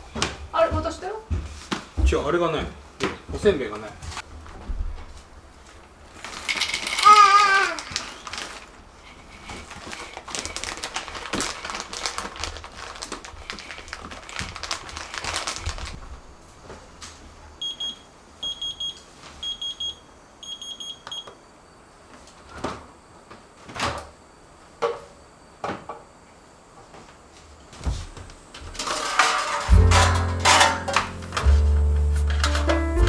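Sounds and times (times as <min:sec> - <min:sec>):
kitchen clatter: 0:28.6 - 0:33.0.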